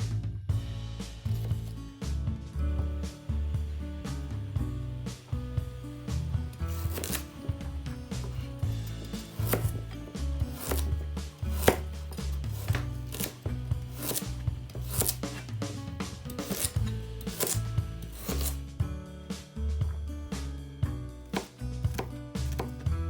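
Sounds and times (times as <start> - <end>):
background music with bass line: 0.0 - 23.0
knife chopping on cutting board: 6.5 - 18.6, 21.3 - 22.8.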